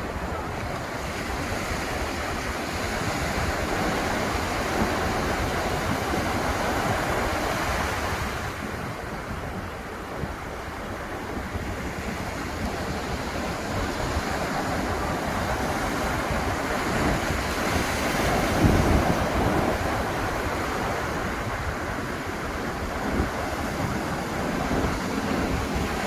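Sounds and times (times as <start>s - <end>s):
ocean surf breaking: 0.0s - 26.0s
wind on microphone: 0.0s - 26.0s.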